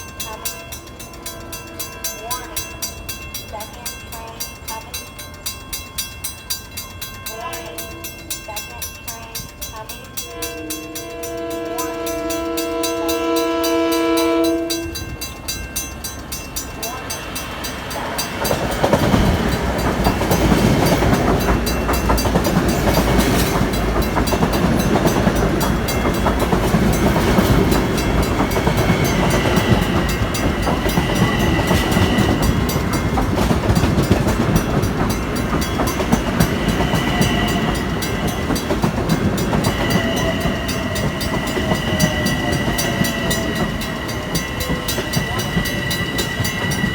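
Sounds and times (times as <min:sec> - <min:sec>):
train passing with rumbling: 0:00.0 - 0:46.9
train horn blast: 0:10.2 - 0:15.1
wheel clatter over rail joints: 0:14.8 - 0:46.9.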